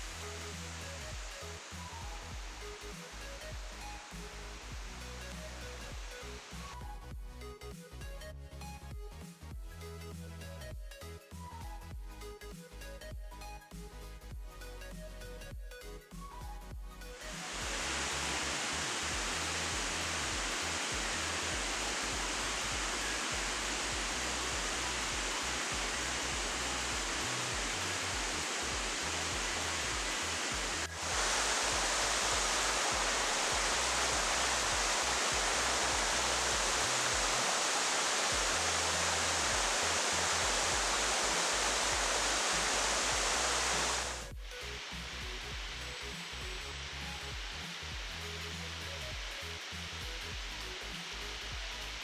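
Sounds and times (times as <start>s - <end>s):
waterfall rushing: 0.0s - 6.7s, 17.2s - 48.1s.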